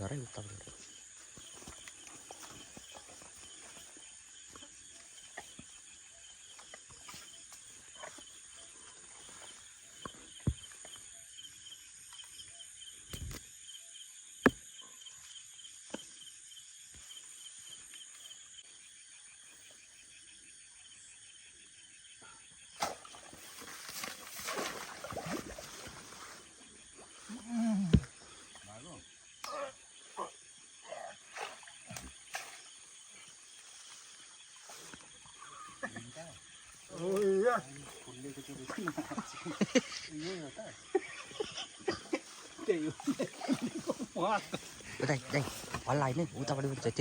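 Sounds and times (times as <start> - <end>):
night insects chirping: 0.0 - 47.0.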